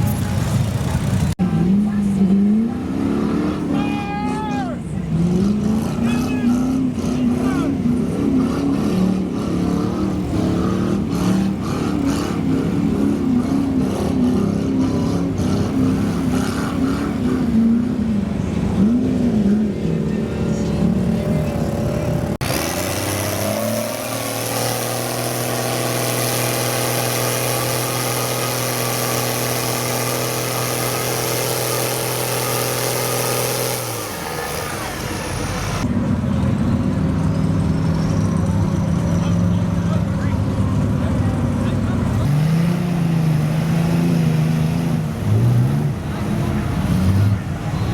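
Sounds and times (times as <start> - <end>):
truck engines revving: 0.0 - 47.9
engine held at high pitch: 21.1 - 36.0.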